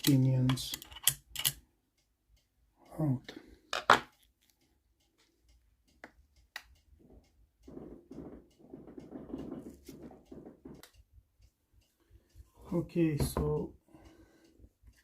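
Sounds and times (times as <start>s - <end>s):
metal scraping and clicking: 0.0s - 1.6s
small metal clicks: 0.0s - 2.5s.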